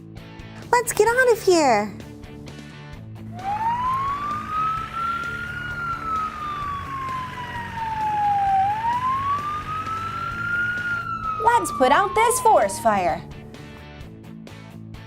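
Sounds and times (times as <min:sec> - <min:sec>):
soft background music: 0:00.0 - 0:15.0
fire truck siren wailing: 0:03.2 - 0:13.6.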